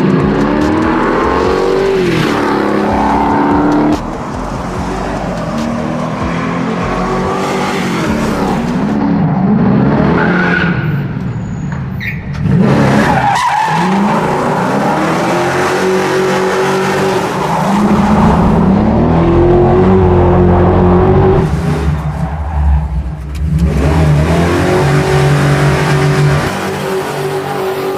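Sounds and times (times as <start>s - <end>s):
tires squealing: 0.0s - 27.9s
car engine revving hard: 23.0s - 27.9s.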